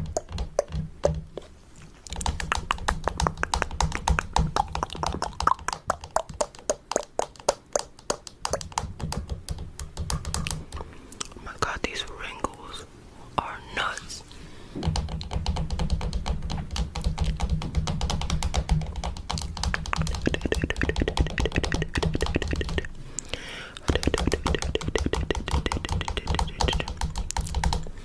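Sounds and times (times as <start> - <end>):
fingernails tapping rapidly: 0.0 - 1.4, 2.1 - 10.8, 14.8 - 22.9, 23.8 - 27.9.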